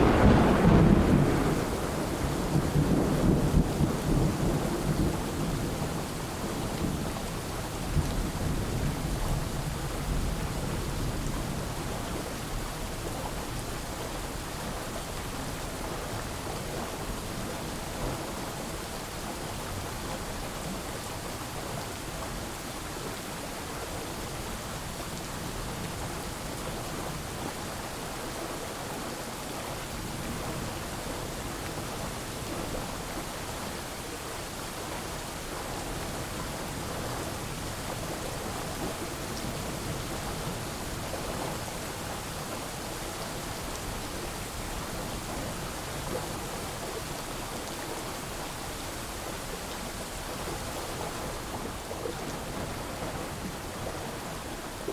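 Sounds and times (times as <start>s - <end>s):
thunder rumble: 0.0s - 6.2s
steady rain falling: 0.0s - 54.9s.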